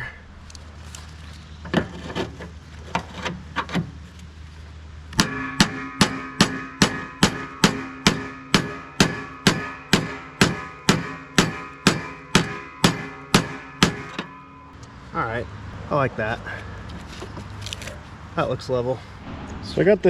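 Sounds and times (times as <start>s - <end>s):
hammer striking metal: 5.2s - 14.8s.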